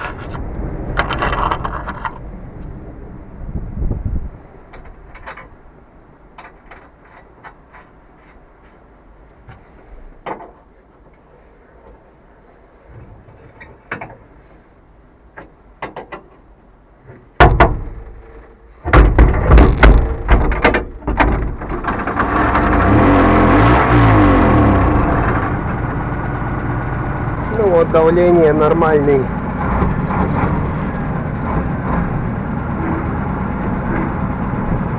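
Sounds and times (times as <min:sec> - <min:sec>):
engine starter clicks and knocks: 0:17.4 - 0:23.1
diesel engine firing knocks: 0:17.4 - 0:34.9
diesel engine running: 0:20.9 - 0:34.9.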